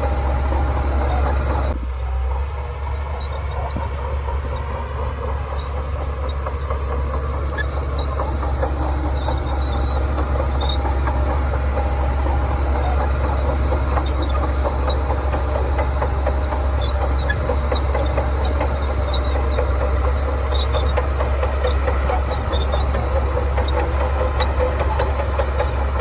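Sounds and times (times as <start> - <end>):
bulldozer diesel engine droning: 0.0 - 26.0
rattling clatter: 3.2 - 26.0.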